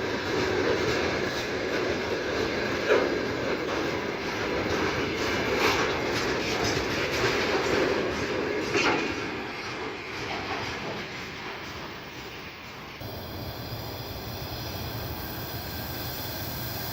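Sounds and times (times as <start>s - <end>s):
freight train rumbling past: 0.0s - 16.9s
wheels clacking over rail joints: 0.1s - 13.1s.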